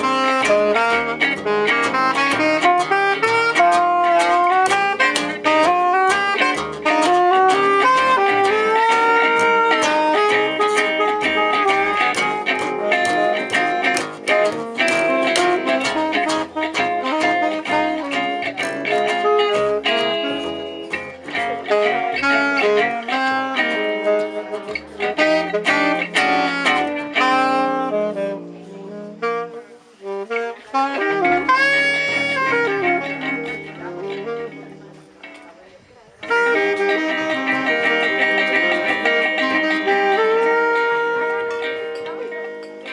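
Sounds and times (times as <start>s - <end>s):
walking bass line: 0.0s - 27.9s
lead melody: 0.0s - 35.4s, 36.2s - 42.9s
plucked rhythm guitar: 0.0s - 42.9s.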